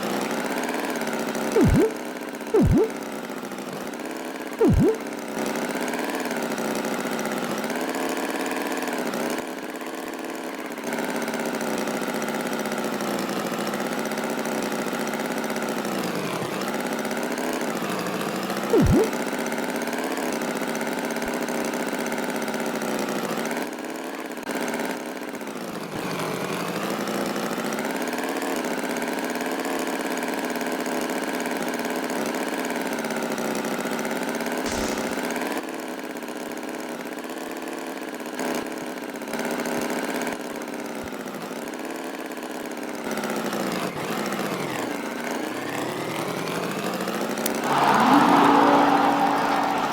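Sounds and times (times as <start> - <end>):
loud falling sound effect: 1.6 - 2.0, 2.6 - 3.0, 4.6 - 5.0, 18.8 - 19.1, 34.7 - 35.4, 47.6 - 49.9
tractor engine running: 34.7 - 35.4.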